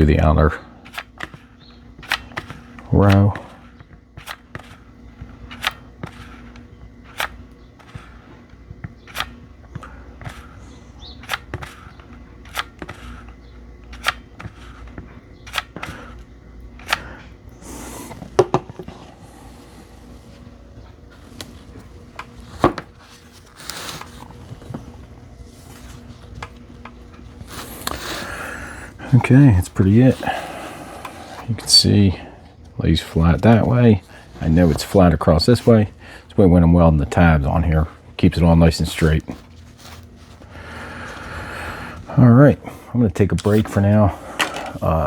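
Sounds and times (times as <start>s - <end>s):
low steady hum: 0.0s - 45.0s
clicks and light knocks on cells: 0.8s - 17.6s.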